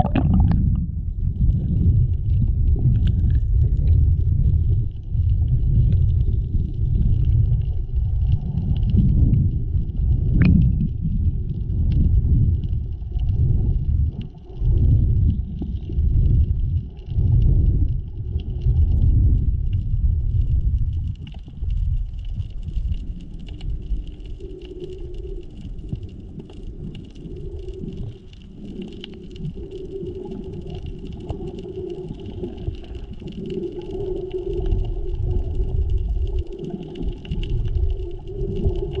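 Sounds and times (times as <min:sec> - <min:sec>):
steady hum: 0:00.0 - 0:01.3
faint crackle of small clicks: 0:00.0 - 0:39.0
muffled underwater rumble: 0:00.0 - 0:39.0.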